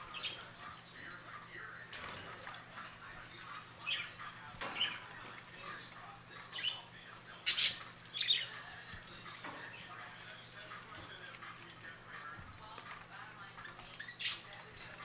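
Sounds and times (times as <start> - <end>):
budgerigars chirping: 0.0 - 0.5, 6.4 - 8.6.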